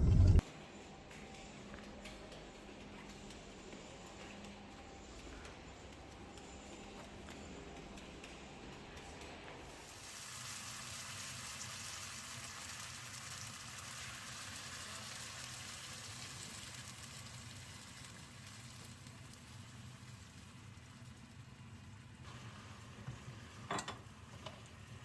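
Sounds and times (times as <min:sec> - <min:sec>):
meat sizzling in a pan: 0:09.7 - 0:25.0.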